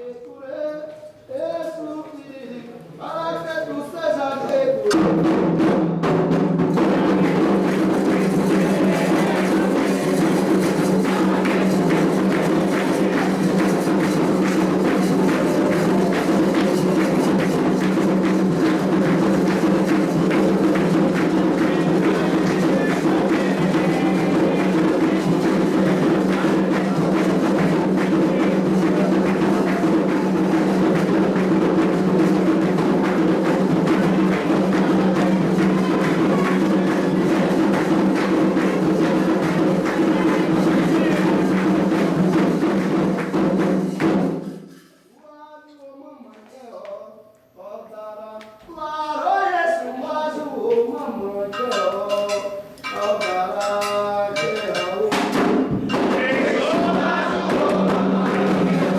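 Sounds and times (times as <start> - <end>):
hand drums playing rhythm: 4.9 - 44.8, 51.5 - 58.9.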